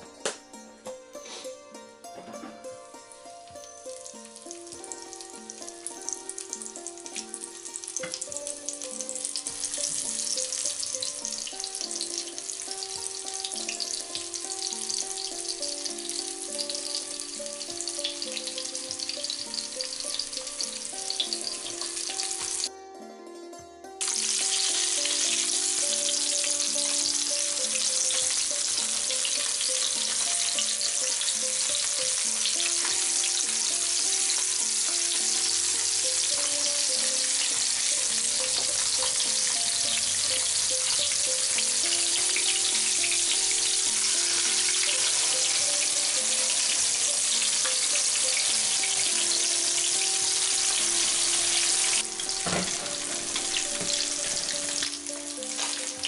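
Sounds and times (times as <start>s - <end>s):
soft background music: 0.0s - 56.0s
tofu sizzling in hot oil: 3.6s - 22.7s, 24.0s - 56.0s.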